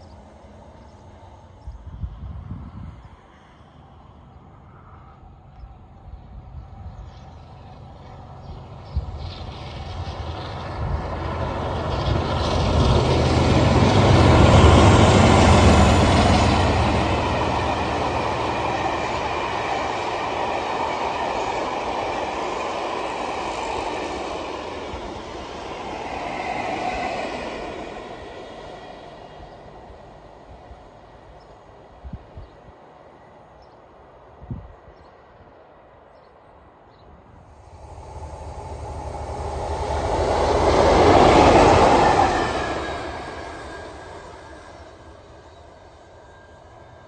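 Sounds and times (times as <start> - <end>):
train rumble and clatter: 0.0 - 33.2, 37.2 - 47.0.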